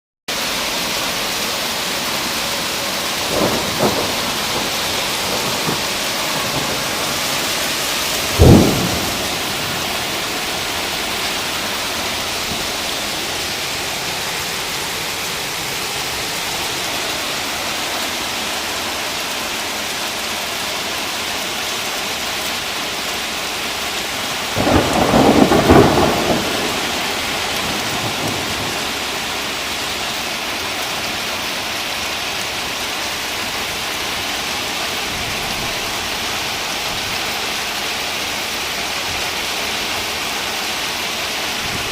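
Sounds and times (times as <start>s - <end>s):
heavy rain falling: 0.3s - 41.9s
rumble of thunder: 3.1s - 11.2s, 24.6s - 29.2s
loud thunderclap: 3.2s - 11.4s, 24.6s - 29.2s.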